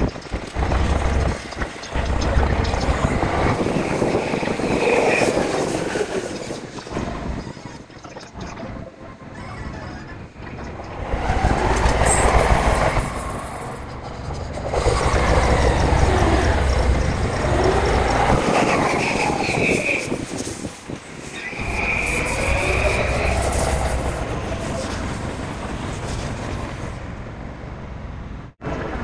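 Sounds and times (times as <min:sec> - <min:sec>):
low train rumble: 0:00.0 - 0:29.0
high steady squeal: 0:10.6 - 0:27.0
electric train motor whine: 0:11.0 - 0:20.2.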